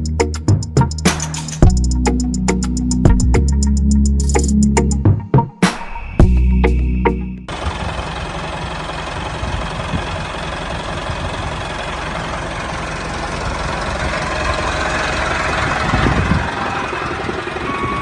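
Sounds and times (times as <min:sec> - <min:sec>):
music: 0:00.0 - 0:07.5
mini tractor engine knocking: 0:07.5 - 0:18.0.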